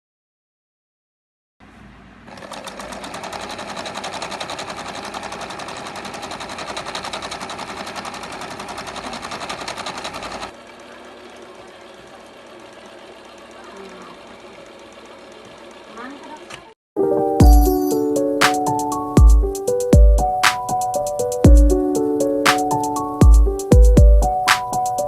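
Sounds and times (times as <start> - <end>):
sewing machine rattling: 2.3 - 16.8.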